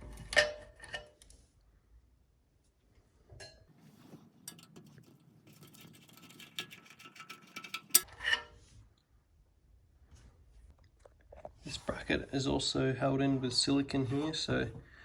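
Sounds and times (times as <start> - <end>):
screws clicking and scraping: 4.4 - 8.2
metal clink: 4.4 - 8.4.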